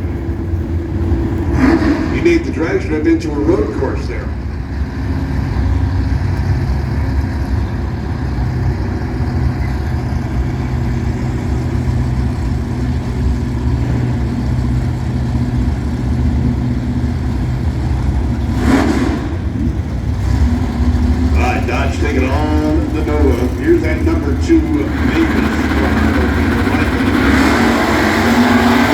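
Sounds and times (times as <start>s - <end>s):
car engines idling: 0.0s - 28.9s
engine revving burst: 1.3s - 4.4s, 17.3s - 28.9s.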